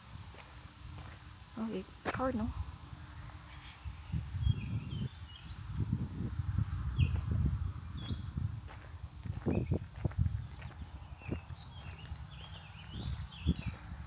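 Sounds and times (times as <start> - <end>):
footsteps thudding on a path: 0.3 - 1.2, 8.0 - 13.9.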